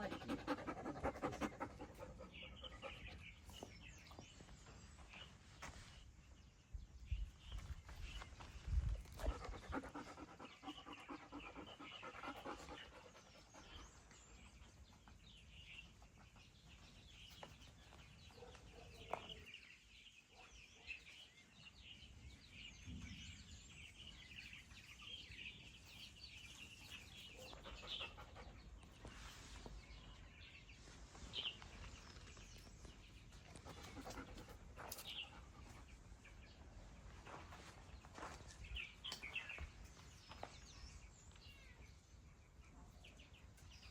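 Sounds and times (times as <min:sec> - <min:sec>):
dog panting rapidly: 0:00.0 - 0:03.3, 0:09.2 - 0:14.0, 0:33.5 - 0:36.0.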